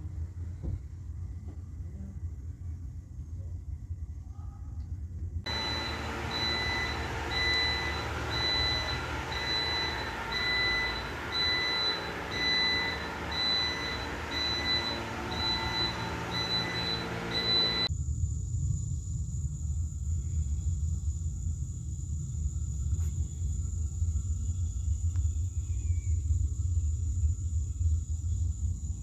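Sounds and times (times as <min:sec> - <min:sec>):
electronic beeps: 0:05.5 - 0:17.9
machinery running: 0:05.5 - 0:17.9.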